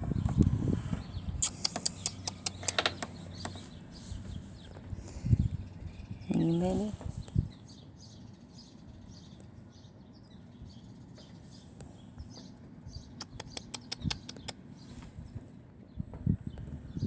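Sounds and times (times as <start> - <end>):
sharp clicks: 1.4 - 3.6, 13.2 - 14.6
small chirps: 1.4 - 4.8, 13.1 - 15.0.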